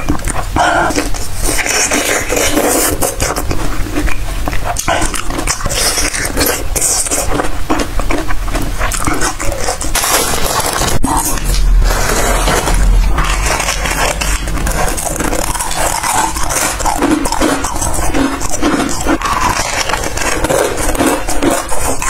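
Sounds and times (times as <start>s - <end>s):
biting and chewing tomato: 0.0s - 22.0s
crisp packet crinkling: 5.3s - 22.0s.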